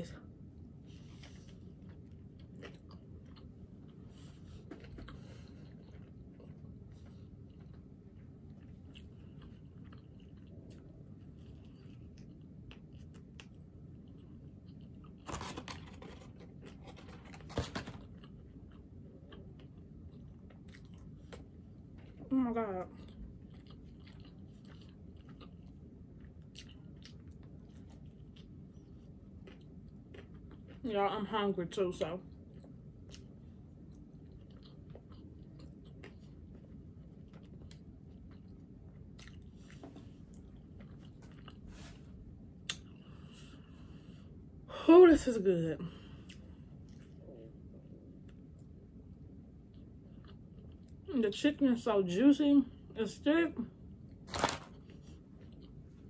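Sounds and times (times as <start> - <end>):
faint chewing: 0.8 - 44.2, 45.9 - 51.1, 54.1 - 56.0
crisp crunches of fried breading: 54.2 - 55.7.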